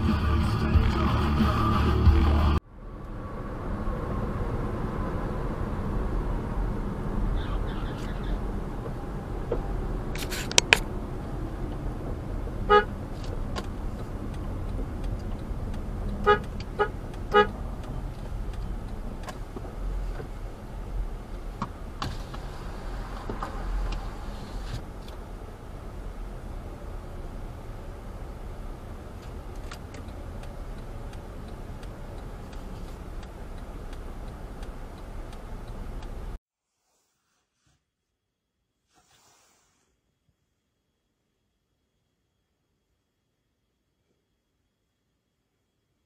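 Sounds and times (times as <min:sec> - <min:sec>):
car road noise: 0:00.0 - 0:36.4
car horn honking: 0:12.6 - 0:13.0, 0:16.2 - 0:17.6.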